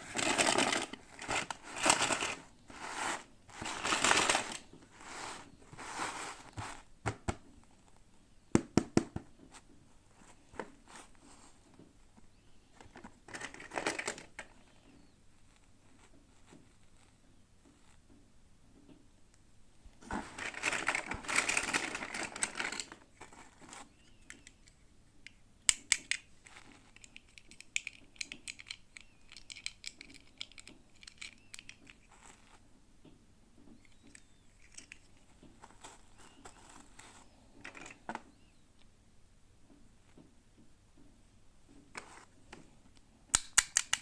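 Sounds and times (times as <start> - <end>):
plastic crinkling and rustling: 0.0 - 6.9, 12.8 - 14.6, 20.0 - 23.9
sharp clicks: 43.3 - 44.0.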